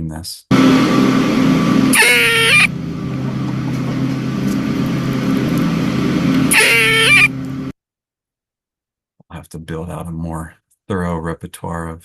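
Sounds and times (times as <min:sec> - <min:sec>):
steady low hum: 0:00.5 - 0:07.7
squirrel alarm call: 0:01.9 - 0:02.8, 0:06.5 - 0:07.4.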